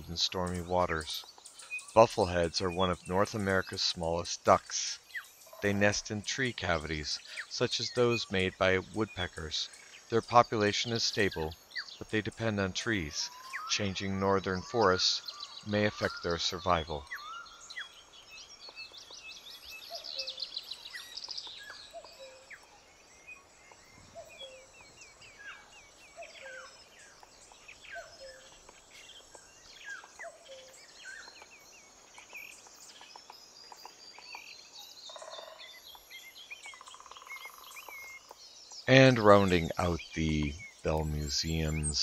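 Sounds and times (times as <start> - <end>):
low hiss: 0.0 - 18.6, 38.5 - 42.0
high trilling bird chirps: 36.4 - 42.0.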